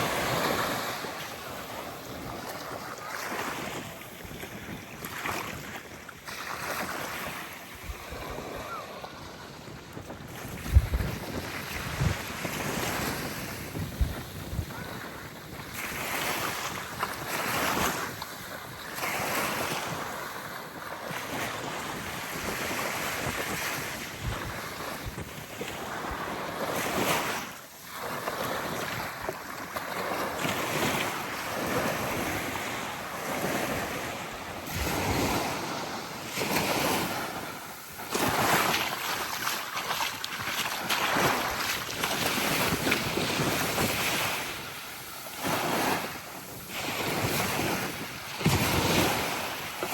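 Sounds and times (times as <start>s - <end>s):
wind buffeting microphone: 0.0s - 27.4s
small waves lapping on beach: 0.0s - 49.9s.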